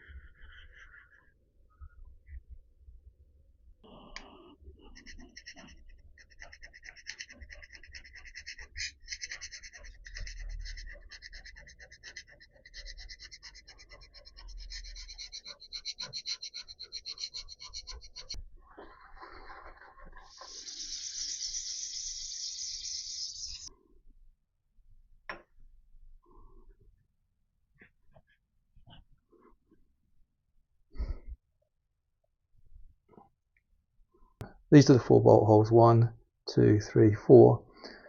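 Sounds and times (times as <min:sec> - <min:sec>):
hand scraper rasping on metal: 0:04.9 - 0:18.4.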